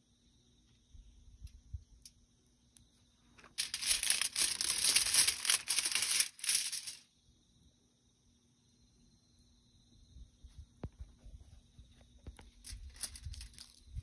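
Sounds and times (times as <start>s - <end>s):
wrapping crinkling and rustling: 3.4s - 7.0s, 12.6s - 14.0s.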